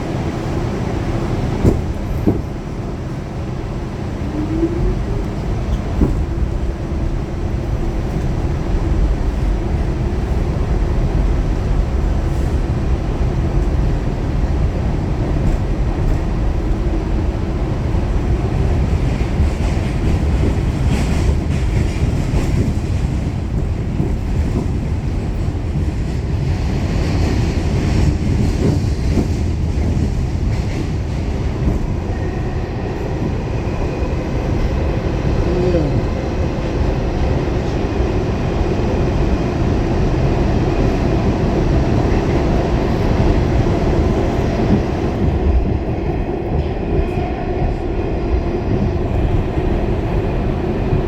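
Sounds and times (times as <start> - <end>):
subway wheels rumbling on rail: 0.0 - 51.0.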